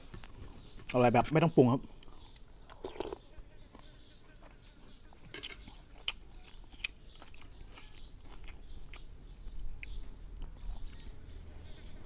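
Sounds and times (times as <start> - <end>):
person chewing and smacking: 1.9 - 11.1.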